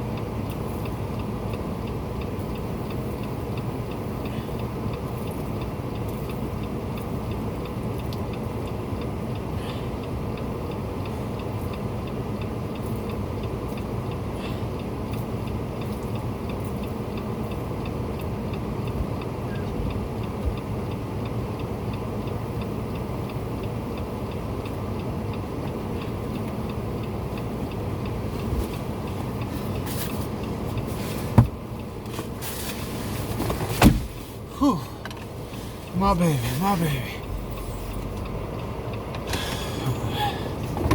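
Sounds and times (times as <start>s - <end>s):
light regular ticking: 0.1s - 33.1s, 34.2s - 40.9s
vehicle engine running: 12.5s - 40.9s.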